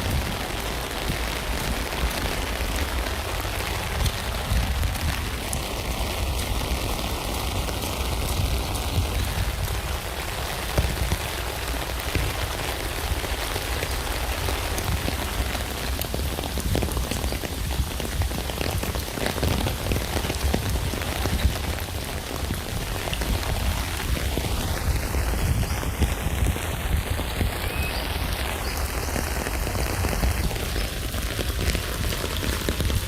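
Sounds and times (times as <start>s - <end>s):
rain pattering on a tent: 0.0s - 33.0s.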